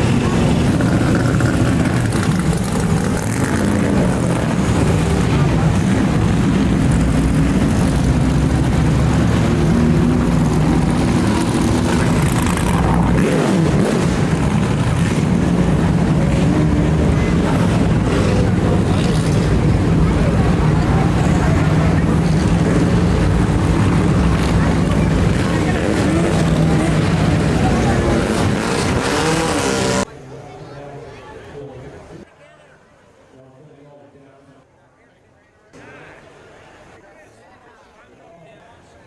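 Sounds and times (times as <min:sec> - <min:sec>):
car engines rumbling: 0:00.0 - 0:30.5.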